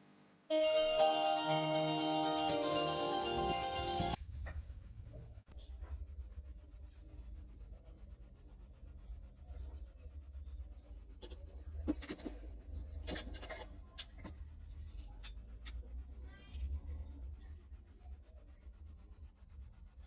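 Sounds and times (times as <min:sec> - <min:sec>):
steady low hum: 0:02.8 - 0:20.0
small hand tools clicking and scratching: 0:10.7 - 0:17.5.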